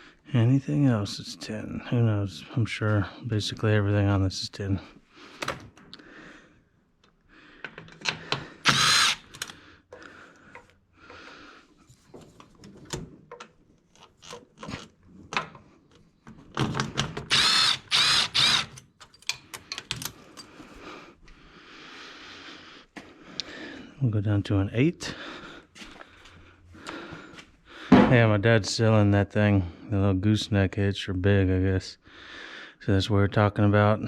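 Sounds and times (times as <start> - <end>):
power tool bursts: 8.6 - 9.6, 17.2 - 18.8
tool and socket clattering: 18.4 - 20.5.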